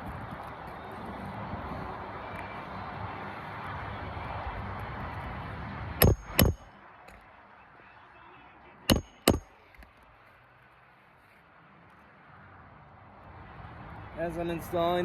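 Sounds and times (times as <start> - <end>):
hammer striking roofing nails: 6.0 - 6.6, 8.9 - 9.5.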